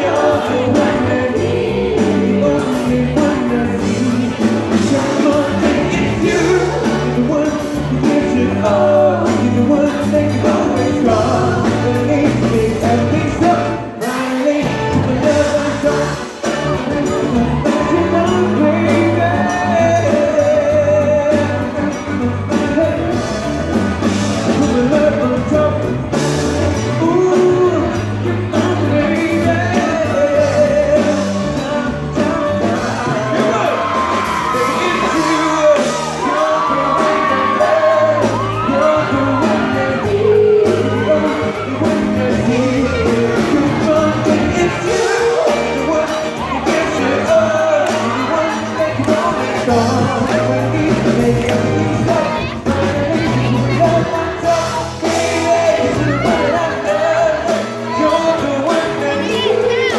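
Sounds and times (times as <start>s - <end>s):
fans shouting and cheering: 0.0s - 59.9s
man singing with band: 0.0s - 59.9s.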